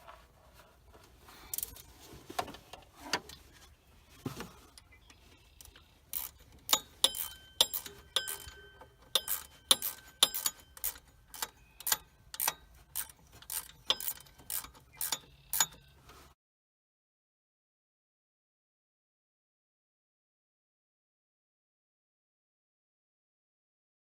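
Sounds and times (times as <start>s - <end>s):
hand tools clicking on metal: 5.6s - 15.9s.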